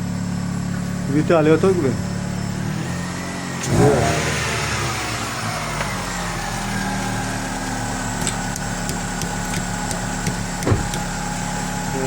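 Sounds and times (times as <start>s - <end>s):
car engine idling: 4.5s - 12.0s.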